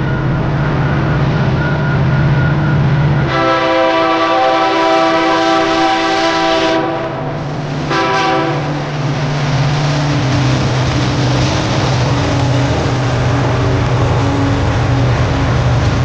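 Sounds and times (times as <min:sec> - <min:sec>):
passing train rumble: 0:00.0 - 0:16.0
train horn blasts: 0:03.2 - 0:08.9.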